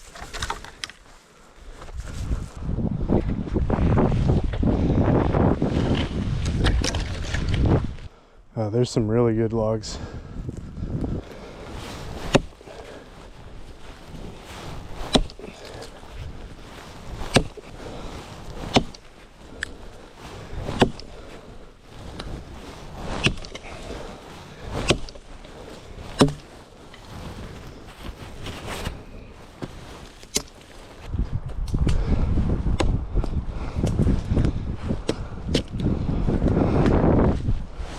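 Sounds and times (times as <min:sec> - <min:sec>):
axe chopping dry wood: 0:12.2 - 0:12.6, 0:14.9 - 0:15.9, 0:17.1 - 0:17.7, 0:18.5 - 0:19.8, 0:20.6 - 0:21.2, 0:23.2 - 0:23.8, 0:24.8 - 0:25.2, 0:26.0 - 0:26.5, 0:29.6 - 0:30.6, 0:32.7 - 0:33.0.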